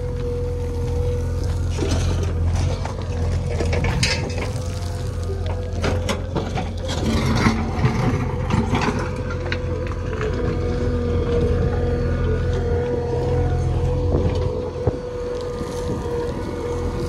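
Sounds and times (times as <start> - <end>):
diesel engine running: 0.0 - 17.0
metallic clanks and rattles: 1.8 - 4.8.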